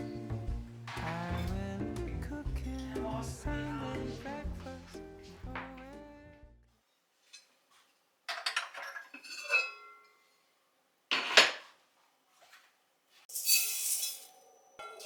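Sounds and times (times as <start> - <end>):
dishes and cutlery clinking: 8.3 - 10.3, 11.1 - 11.7.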